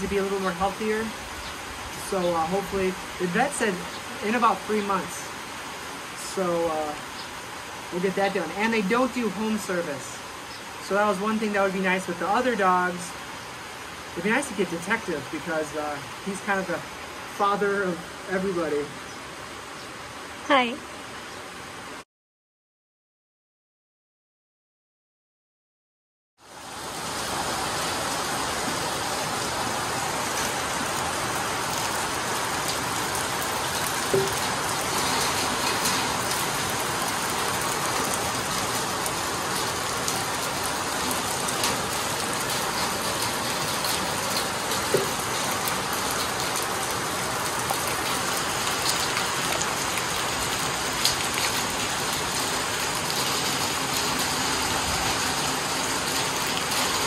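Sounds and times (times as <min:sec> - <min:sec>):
steady rain downpour: 0:00.0 - 0:22.0, 0:26.4 - 0:57.0
sharp taps of raindrops: 0:33.7 - 0:40.3, 0:41.1 - 0:52.5.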